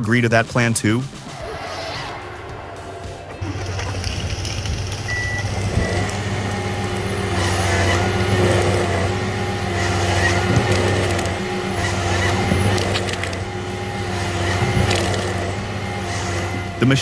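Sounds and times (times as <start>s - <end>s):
high machine whine: 0.8s - 17.0s
diesel engine under load: 1.1s - 17.0s.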